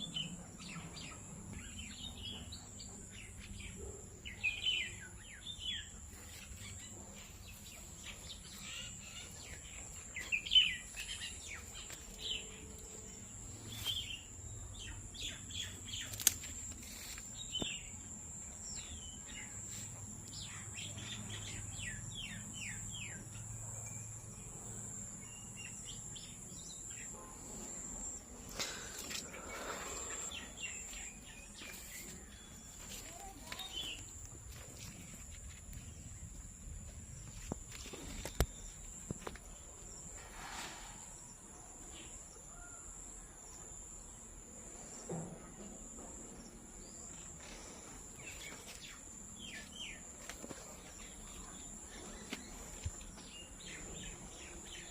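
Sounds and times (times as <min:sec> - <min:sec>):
birds chirping: 0:00.0 - 0:40.2.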